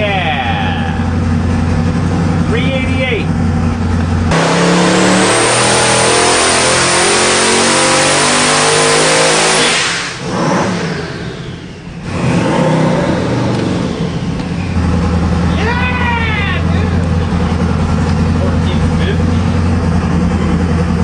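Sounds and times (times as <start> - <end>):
engine idling: 0.0 - 5.6, 10.0 - 21.0
turbocharged engine revving: 0.0 - 21.0.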